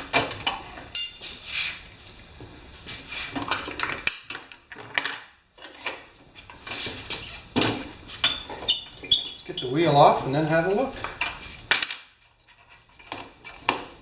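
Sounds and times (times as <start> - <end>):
metal hand tools clinking: 0.9 - 1.3.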